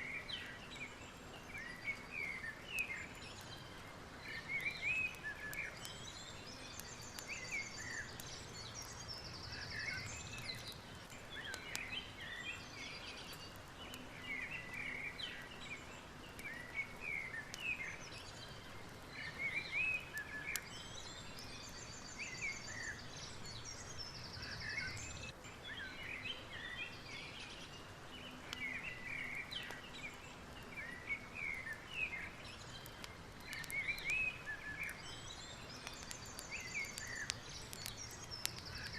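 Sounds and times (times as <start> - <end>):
background hiss: 0.0 - 38.9
birds chirping and trilling: 0.0 - 38.9
faint clicks: 9.8 - 12.0, 32.8 - 35.0, 35.7 - 38.9.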